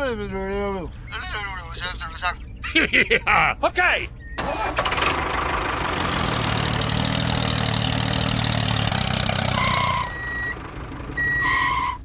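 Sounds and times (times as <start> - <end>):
vehicle engine idling: 4.2 - 12.0.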